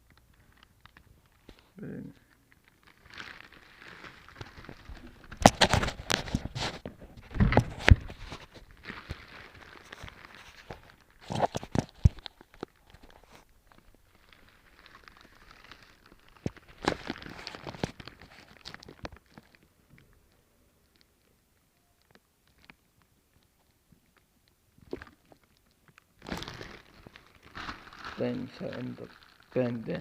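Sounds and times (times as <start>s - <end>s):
paper and cardboard rustling: 3.3s - 12.3s.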